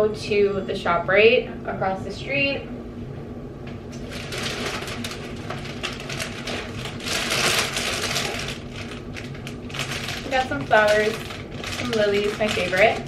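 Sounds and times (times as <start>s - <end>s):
plastic wrapping crinkling: 4.0s - 13.0s.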